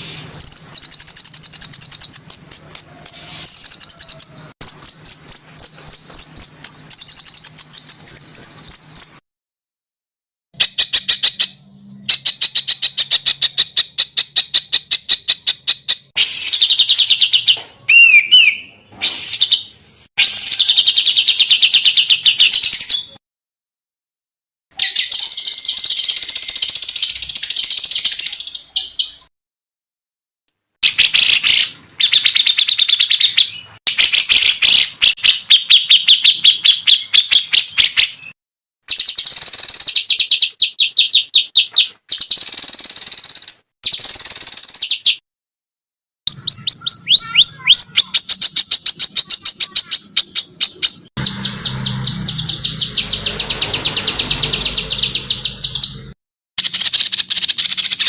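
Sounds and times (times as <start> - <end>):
songbird chirps and trills: 0.1 - 9.2, 46.3 - 56.0.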